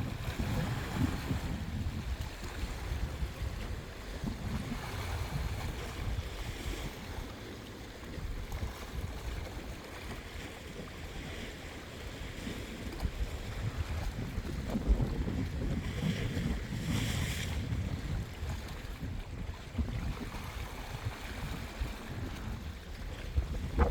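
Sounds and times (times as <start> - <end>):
wind buffeting microphone: 0.0 - 7.4, 12.4 - 23.9.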